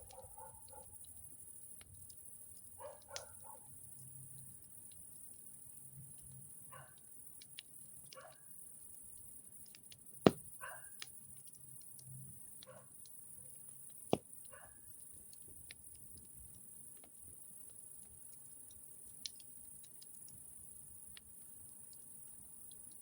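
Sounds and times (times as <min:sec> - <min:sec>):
campfire crackling: 0:00.0 - 0:23.0
sharp loud pops: 0:10.3 - 0:10.5.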